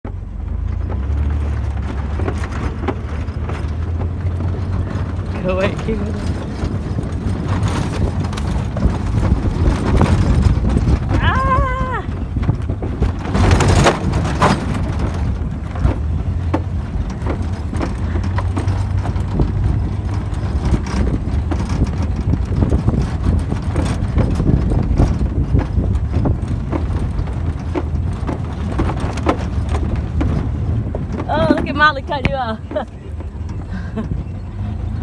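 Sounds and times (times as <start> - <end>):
truck engine rumbling: 0.0 - 35.0
knocks and clatter: 0.1 - 35.0.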